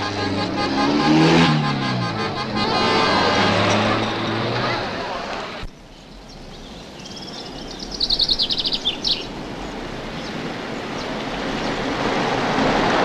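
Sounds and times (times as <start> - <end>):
car driving through field: 0.0 - 13.0
small bird chirping and trilling: 6.0 - 9.3.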